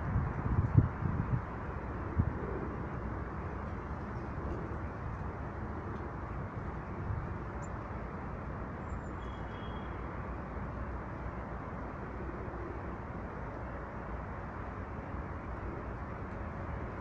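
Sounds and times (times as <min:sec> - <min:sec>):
faint high bird chirps: 0:08.8 - 0:10.0.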